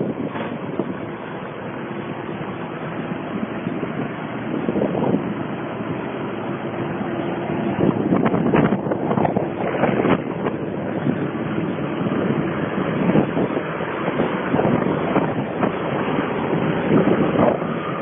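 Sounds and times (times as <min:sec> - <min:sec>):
diesel tractor engine under load: 0:00.0 - 0:18.0
wind on microphone: 0:00.0 - 0:18.0.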